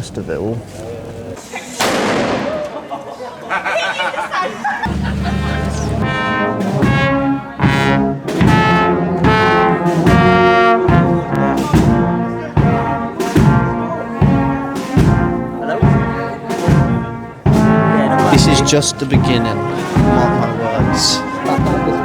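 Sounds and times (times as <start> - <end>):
brass band playing a march: 4.8 - 22.0
steady drumbeat: 4.8 - 22.0.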